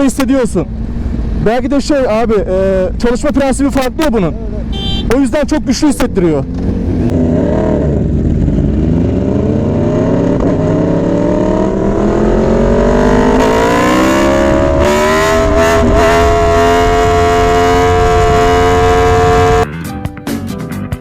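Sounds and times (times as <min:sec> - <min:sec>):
motorcycle engine revving: 0:04.3 - 0:19.7.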